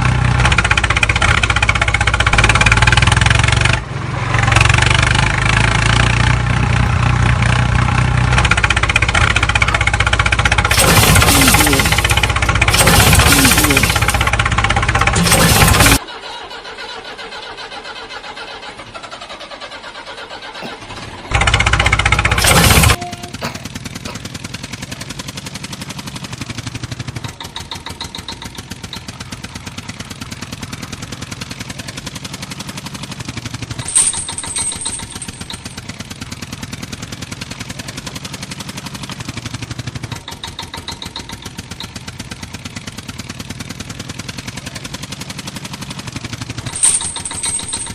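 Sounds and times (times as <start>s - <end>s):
small tractor engine running: 0.0s - 47.9s
loud burst of noise: 10.7s - 14.4s.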